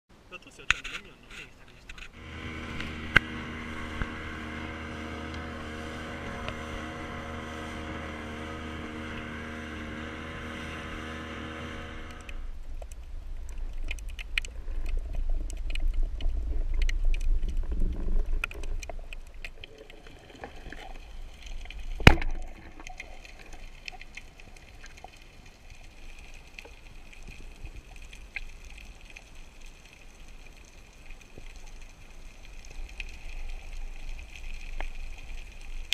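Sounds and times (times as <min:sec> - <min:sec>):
low rumbling water noise: 0:00.1 - 0:35.9
underwater motor drone: 0:02.1 - 0:12.6.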